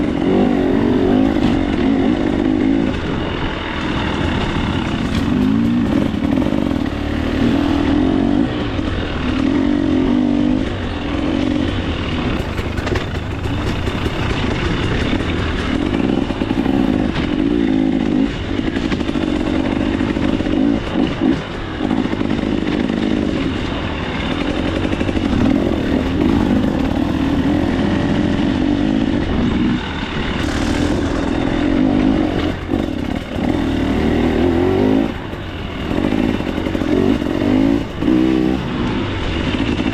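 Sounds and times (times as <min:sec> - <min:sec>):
dirt bike engine revving: 0:00.0 - 0:39.9
knocks and rattles from bike: 0:00.0 - 0:39.9.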